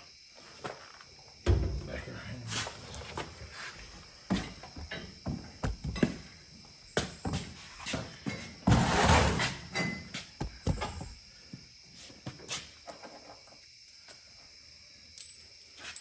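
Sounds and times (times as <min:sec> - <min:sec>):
tools clattering: 0:09.4 - 0:10.2.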